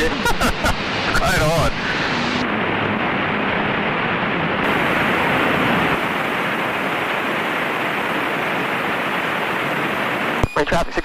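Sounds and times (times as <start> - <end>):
airplane cabin engine hiss: 0.0 - 11.0.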